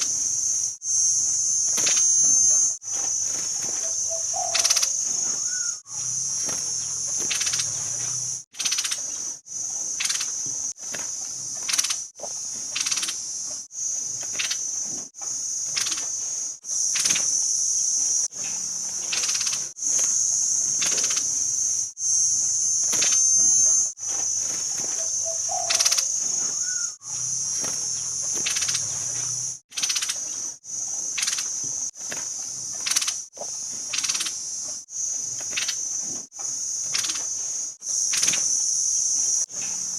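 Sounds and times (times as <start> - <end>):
sharp chirps: 0.0 - 9.2, 19.0 - 30.5
high-pitched insect buzz: 0.0 - 39.9.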